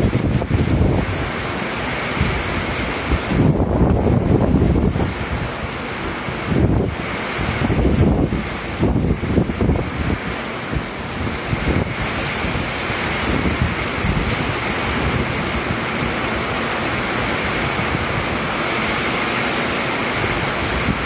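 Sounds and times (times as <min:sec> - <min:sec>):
torrential rain hissing: 0:00.0 - 0:21.0
wind buffeting microphone: 0:00.0 - 0:21.0.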